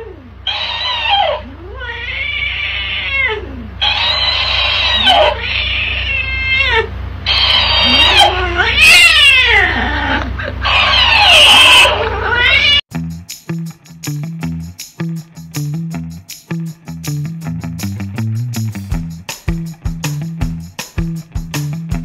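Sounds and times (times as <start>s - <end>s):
cat meowing and yowling: 0.0s - 12.8s
toy playing back sped-up meows: 0.5s - 9.6s.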